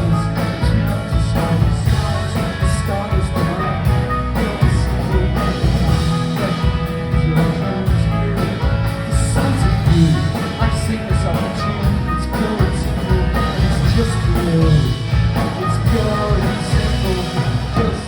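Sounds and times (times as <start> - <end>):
live rock band playing: 0.0 - 18.0
person singing: 0.0 - 18.0.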